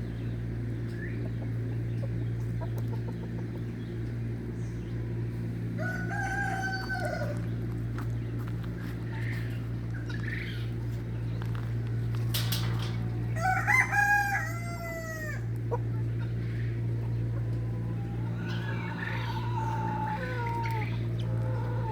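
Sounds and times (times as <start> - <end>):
farm birds calling: 0.0 - 21.9
steady low hum: 0.0 - 21.9
rooster crowing: 5.8 - 7.5, 13.3 - 15.5, 17.7 - 21.9.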